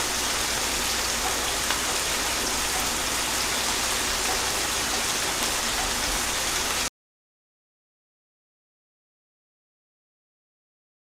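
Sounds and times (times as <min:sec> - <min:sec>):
gentle rain hiss: 0:00.0 - 0:06.9.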